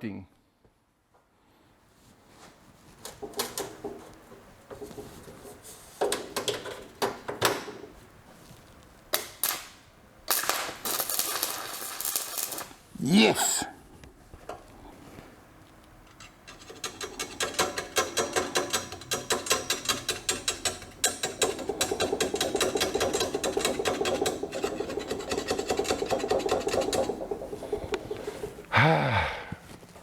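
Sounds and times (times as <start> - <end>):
welding arc crackling: 10.3 - 12.9, 19.4 - 28.7.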